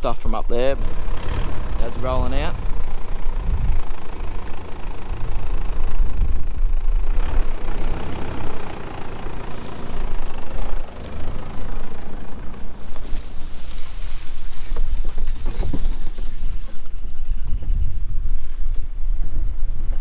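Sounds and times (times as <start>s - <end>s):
car engine rumbling: 0.0s - 20.0s
road hiss: 7.3s - 17.2s.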